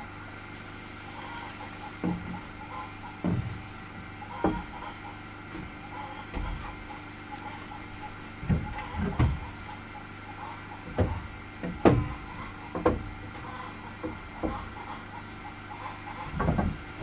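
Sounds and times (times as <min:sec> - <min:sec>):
wooden knocks and thuds: 0:02.0 - 0:02.5, 0:03.2 - 0:04.9, 0:05.5 - 0:06.8, 0:08.1 - 0:09.7, 0:10.8 - 0:15.4, 0:16.2 - 0:17.0.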